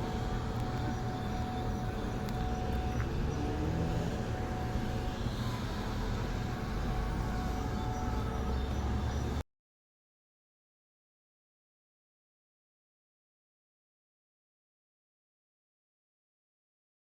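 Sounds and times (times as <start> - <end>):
airliner cabin engine roar: 0.0 - 9.4
faint steady hum: 0.0 - 9.4.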